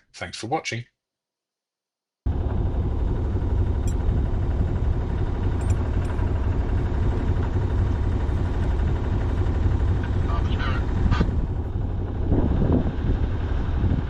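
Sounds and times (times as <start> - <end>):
boat engine rumbling: 2.3 - 14.0.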